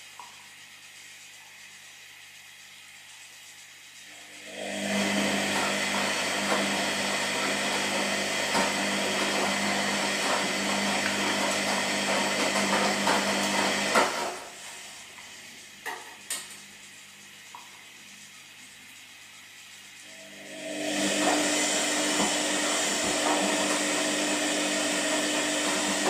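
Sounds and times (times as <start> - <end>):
washing machine motor humming: 2.4 - 26.0.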